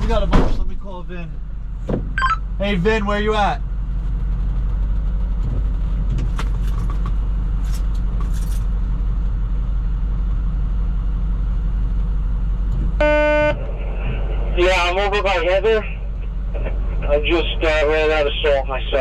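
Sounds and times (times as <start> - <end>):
truck engine low rumble: 0.0 - 19.0
short electronic beep: 2.2 - 2.5, 13.0 - 13.6.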